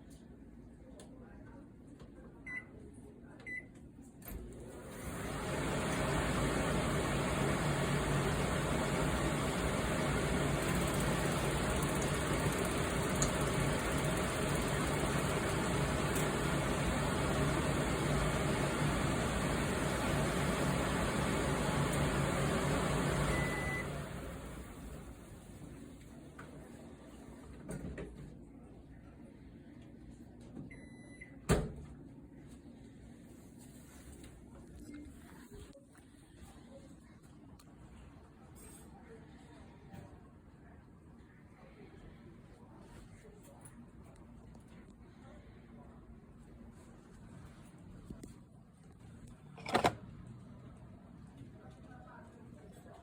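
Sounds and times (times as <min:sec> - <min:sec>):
clothes dryer humming: 0:04.5 - 0:27.1.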